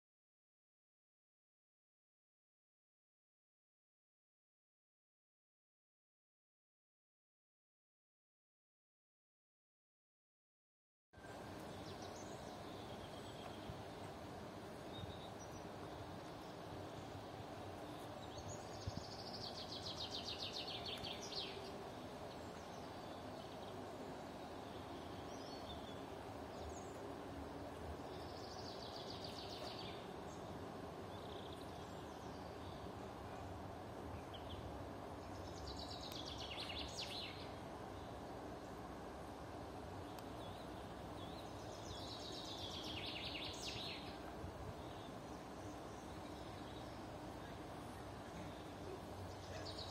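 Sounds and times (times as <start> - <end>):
low outdoor background noise: 11.2 - 49.9.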